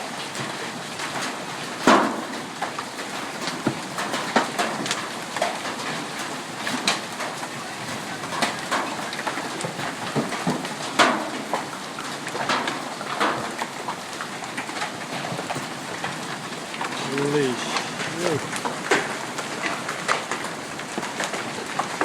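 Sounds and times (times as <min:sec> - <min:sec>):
hail striking hard surfaces: 0:00.0 - 0:22.0
heavy rain hissing: 0:05.8 - 0:22.0.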